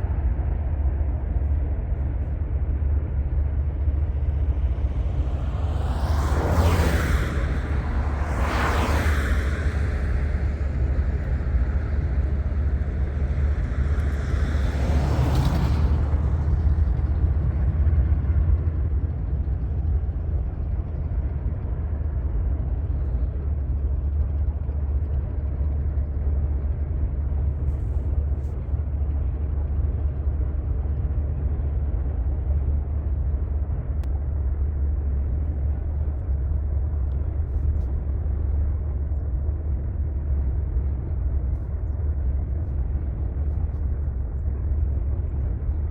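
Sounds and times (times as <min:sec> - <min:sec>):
low vehicle rumble: 0:00.0 - 0:45.9.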